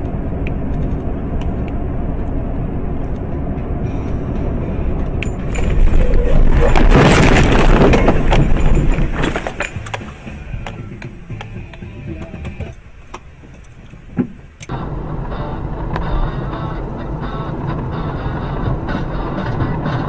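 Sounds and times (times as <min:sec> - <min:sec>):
vehicle engine and road noise: 0:00.0 - 0:20.0
vehicle collision crash: 0:05.3 - 0:10.5.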